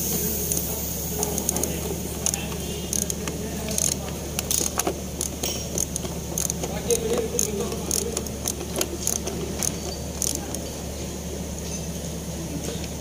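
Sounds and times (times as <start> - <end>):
steady low hum: 0.0 - 13.0
hand tools clinking on metal: 3.0 - 10.5.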